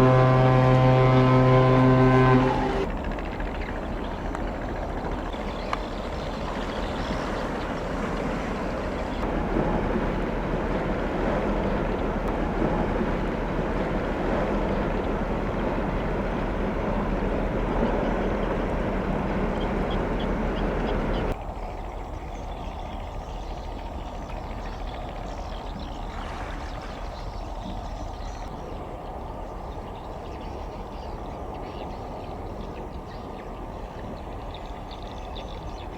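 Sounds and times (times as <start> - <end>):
low hum: 0.0 - 28.5
ship engine: 0.0 - 29.7
moving water: 0.0 - 35.9.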